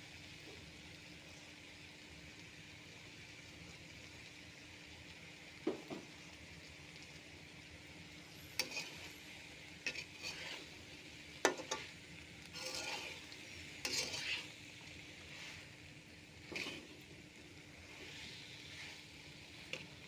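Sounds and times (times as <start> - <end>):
food sizzling in a pan: 0.0 - 20.0
spatula scraping a pan: 8.3 - 15.8, 16.4 - 17.2, 17.8 - 20.0.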